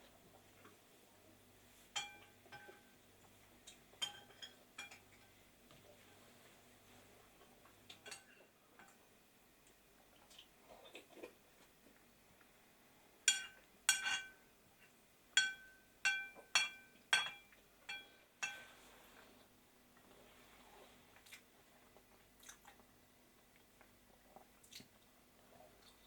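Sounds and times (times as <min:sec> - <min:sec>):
spoon clinking against a dish: 0:02.0 - 0:03.0, 0:04.0 - 0:05.3, 0:07.9 - 0:09.0, 0:13.3 - 0:14.4, 0:15.4 - 0:18.7.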